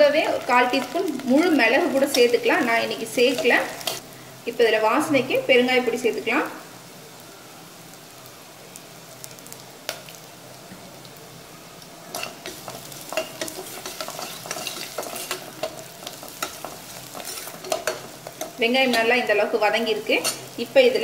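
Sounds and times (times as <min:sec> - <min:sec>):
food sizzling in hot oil: 0:00.0 - 0:21.0
spoon scraping a pot: 0:12.1 - 0:15.8, 0:20.2 - 0:20.5.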